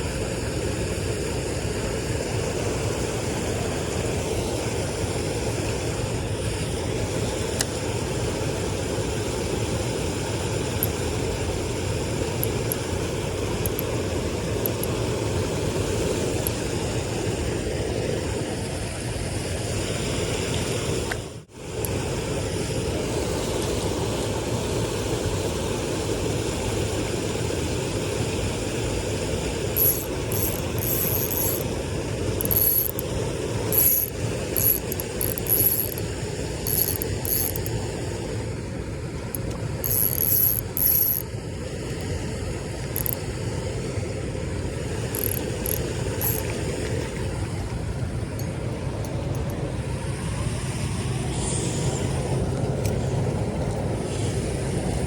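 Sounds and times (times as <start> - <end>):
steady low rumble: 0.0 - 55.0
mechanical clicking and whirring: 10.6 - 11.1, 12.2 - 15.0, 29.7 - 37.9, 39.3 - 43.3, 45.0 - 47.0.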